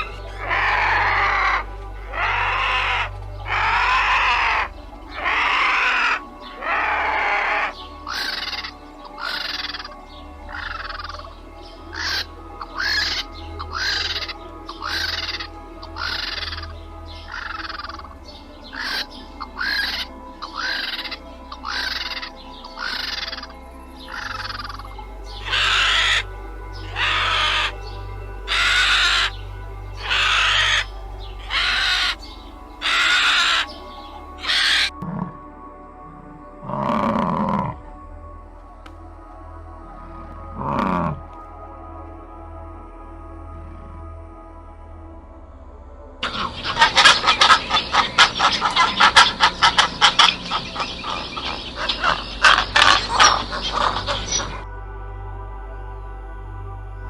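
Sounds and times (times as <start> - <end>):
bird harsh rasping call: 0.0 - 35.3, 46.2 - 54.7
background music: 0.0 - 57.0
fowl calling sharply: 25.5 - 26.2, 30.0 - 32.2, 32.8 - 33.8, 46.2 - 54.6.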